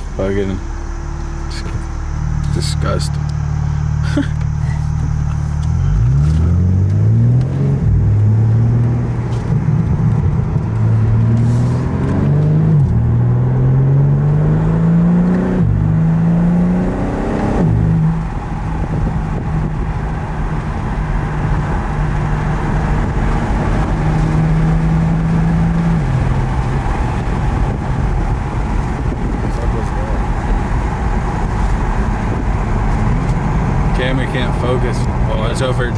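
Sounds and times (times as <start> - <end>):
car engine accelerating hard: 0.0 - 35.9.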